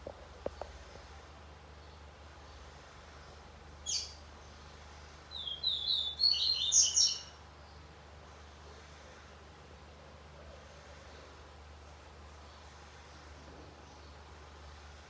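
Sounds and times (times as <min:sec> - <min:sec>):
bird call and chirping song: 0:03.8 - 0:04.6, 0:05.3 - 0:07.8.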